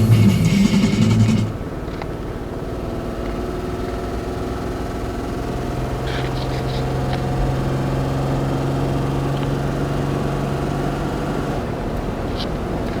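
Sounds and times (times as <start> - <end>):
vehicle engine humming: 0.0 - 2.3.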